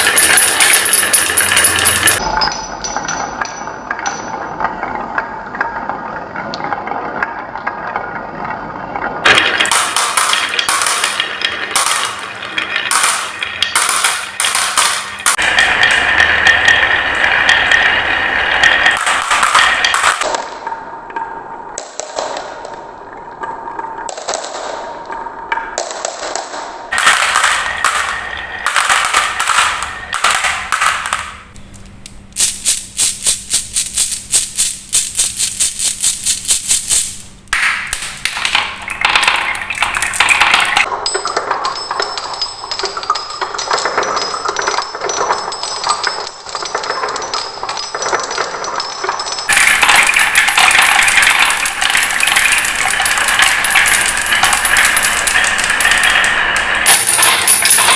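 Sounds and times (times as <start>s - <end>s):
marbles clacking down wooden tracks: 0.0s - 57.9s.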